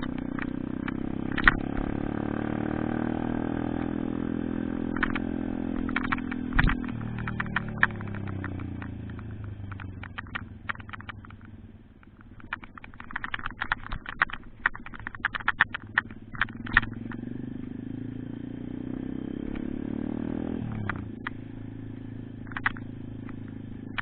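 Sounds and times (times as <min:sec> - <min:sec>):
rapid clicks and rattles: 0:00.0 - 0:02.7, 0:03.8 - 0:17.6, 0:20.6 - 0:21.4, 0:22.3 - 0:24.0
small motorbike engine accelerating: 0:00.0 - 0:24.0.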